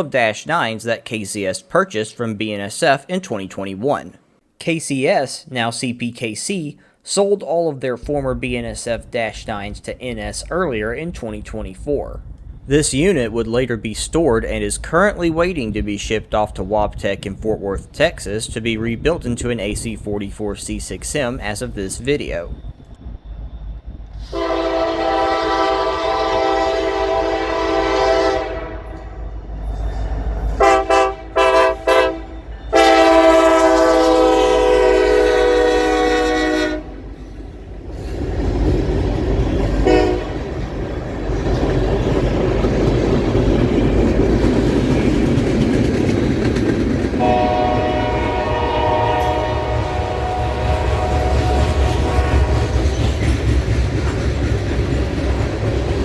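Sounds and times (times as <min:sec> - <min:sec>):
train rumbling past: 0:08.0 - 0:56.0
train air horn: 0:24.3 - 0:29.2, 0:30.6 - 0:37.1, 0:39.8 - 0:40.4, 0:47.2 - 0:52.8
wheels clacking on rail joints: 0:37.3 - 0:49.4, 0:50.5 - 0:56.0.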